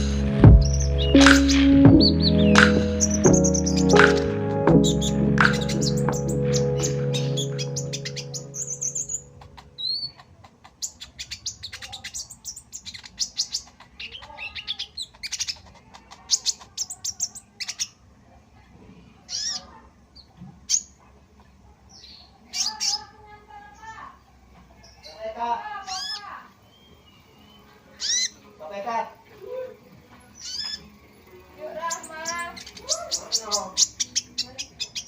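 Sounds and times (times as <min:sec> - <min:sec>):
background music: 0:00.0 - 0:09.6
songbirds chirping: 0:00.0 - 0:35.0.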